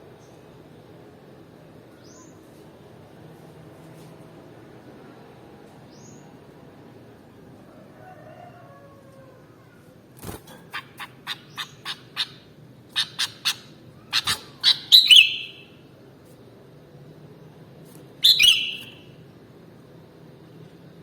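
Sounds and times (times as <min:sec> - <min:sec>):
bird calling with sharp chips: 0:10.6 - 0:12.4, 0:13.0 - 0:15.8, 0:18.2 - 0:19.1.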